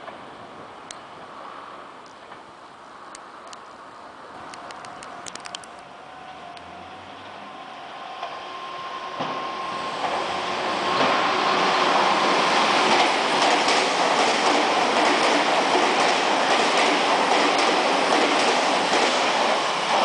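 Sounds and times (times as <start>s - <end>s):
electric train passing: 0.0s - 20.0s
clicks from rail joints: 4.4s - 5.9s, 10.9s - 11.2s, 12.8s - 20.0s.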